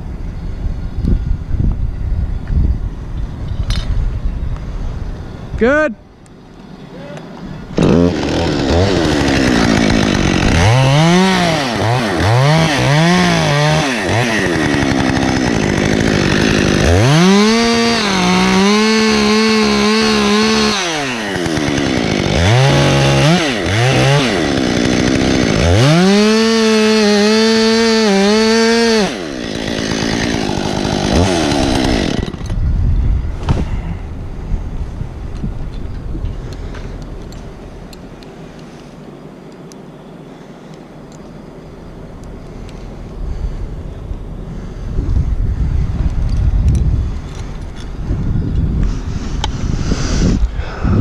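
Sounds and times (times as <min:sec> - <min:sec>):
chainsaw revving and cutting wood: 0:07.8 - 0:32.6.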